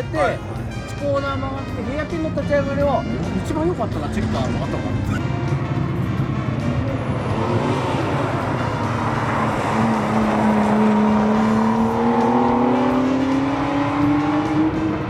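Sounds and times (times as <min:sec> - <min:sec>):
car engine accelerating: 0:04.2 - 0:15.0.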